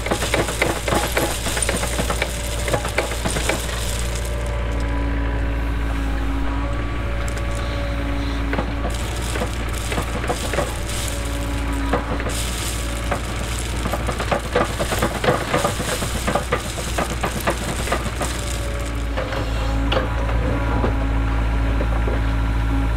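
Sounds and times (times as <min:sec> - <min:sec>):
stones grinding against bucket: 0:00.0 - 0:05.1, 0:06.6 - 0:19.3
excavator engine running: 0:00.0 - 0:22.9.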